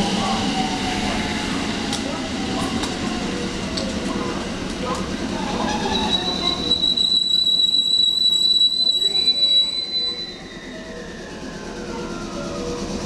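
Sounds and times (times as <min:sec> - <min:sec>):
low train whine falling in pitch: 0:00.0 - 0:13.0
train brakes squealing: 0:05.3 - 0:13.0.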